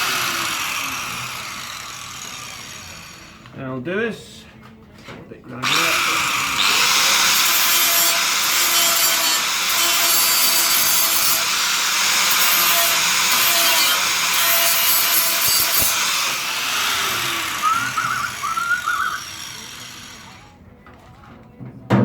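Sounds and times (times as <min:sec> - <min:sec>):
power grinder on steel: 0:00.0 - 0:03.5, 0:05.6 - 0:20.6.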